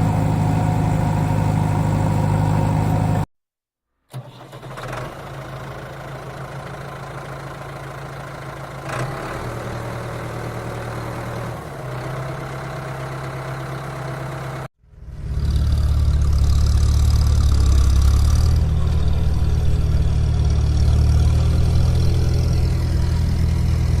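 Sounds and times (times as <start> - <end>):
diesel engine running: 0.0 - 3.3, 9.8 - 24.0.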